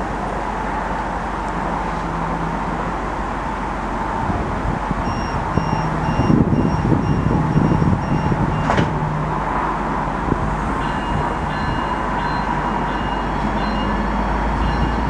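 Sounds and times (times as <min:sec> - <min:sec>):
diesel railcar running: 0:00.0 - 0:15.0
train doors shutting: 0:04.9 - 0:15.0
door warning beeps: 0:05.1 - 0:08.9, 0:10.8 - 0:15.0.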